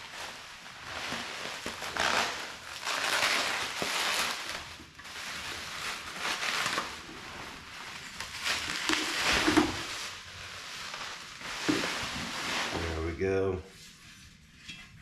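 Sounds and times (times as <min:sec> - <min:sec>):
plastic packaging crinkling: 0:00.0 - 0:13.4.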